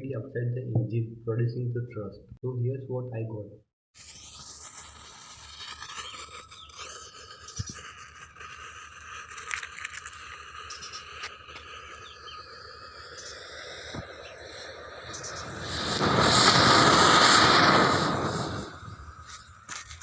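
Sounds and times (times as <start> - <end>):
high chirring and chirps: 10.2 - 19.7.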